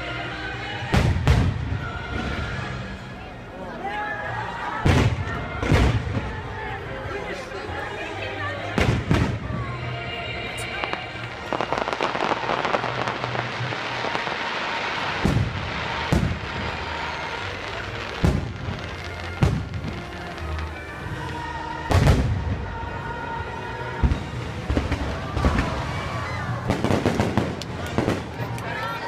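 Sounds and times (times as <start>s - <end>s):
music soundtrack: 0.0s - 29.0s
fireworks booming: 0.9s - 2.4s, 4.8s - 6.4s, 10.8s - 20.9s, 21.9s - 22.8s, 24.0s - 28.5s.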